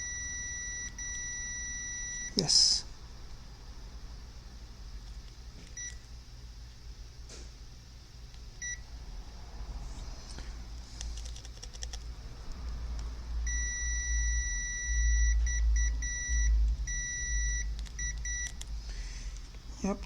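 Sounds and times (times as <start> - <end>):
multimeter continuity beeps: 0.0 - 2.8, 5.8 - 6.1, 8.6 - 8.9, 13.4 - 18.6.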